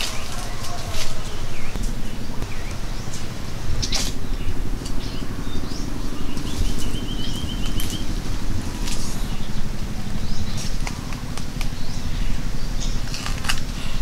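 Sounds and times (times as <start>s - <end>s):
bird trill: 0.0s - 14.0s
small birds chirping: 0.0s - 14.0s
steady low rumble: 0.0s - 14.0s.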